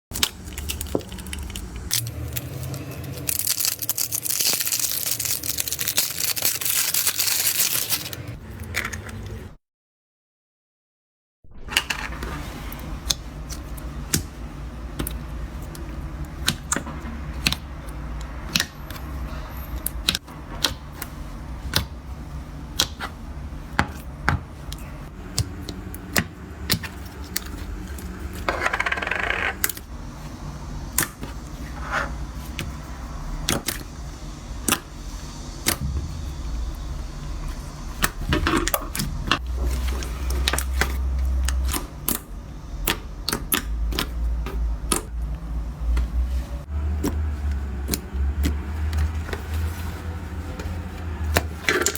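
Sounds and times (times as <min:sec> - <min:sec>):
rustling squish of slime: 0:00.1 - 0:09.3, 0:12.3 - 0:28.5, 0:29.6 - 0:51.9
low hum: 0:24.8 - 0:51.6.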